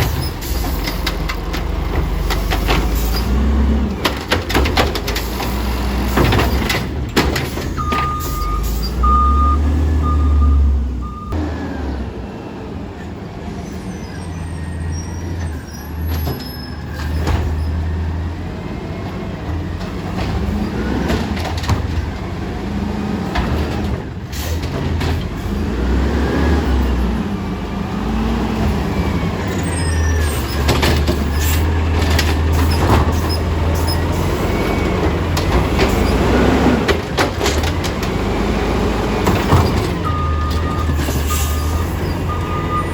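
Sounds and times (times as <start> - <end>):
garbage truck engine revving: 0.0 - 42.9
high beeps: 7.8 - 11.4.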